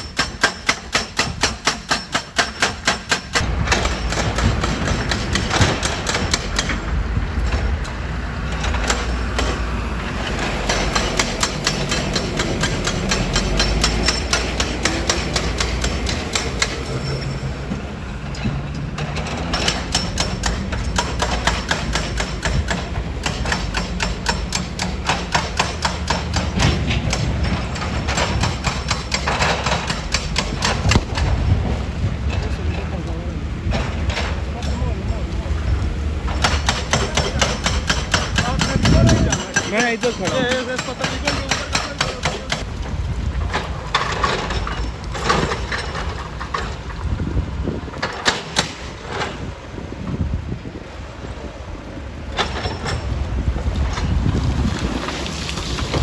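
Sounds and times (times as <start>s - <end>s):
fast hammering impacts: 0.0s - 6.8s, 8.5s - 17.0s, 19.4s - 31.2s, 36.3s - 42.7s
heavy machinery rumble: 0.0s - 56.0s.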